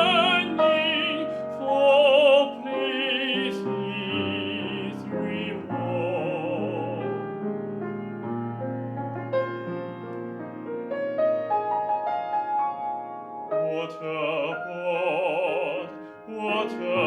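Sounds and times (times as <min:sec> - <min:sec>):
singer with wide vibrato: 0:00.0 - 0:07.0
piano climbing notes: 0:00.0 - 0:17.0.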